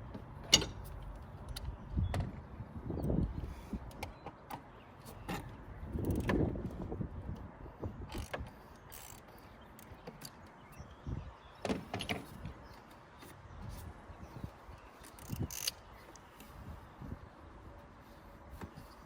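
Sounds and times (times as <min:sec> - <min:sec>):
tools clicking and rattling: 0:00.4 - 0:01.8, 0:08.1 - 0:10.5, 0:15.0 - 0:16.3.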